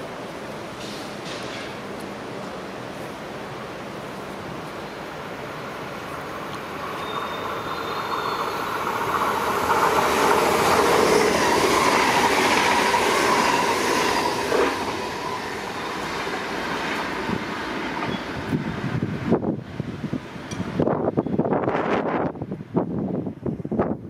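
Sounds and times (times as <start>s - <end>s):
electric train passing: 0.0s - 23.2s
sharp clack of train wheels: 0.7s - 2.1s, 6.5s - 18.6s, 20.4s - 20.9s.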